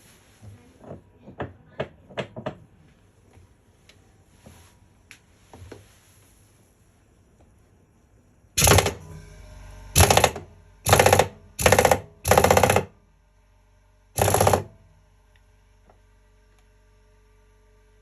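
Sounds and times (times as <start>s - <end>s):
impact driver rattling: 8.6s - 9.0s, 10.0s - 13.0s, 14.2s - 14.8s.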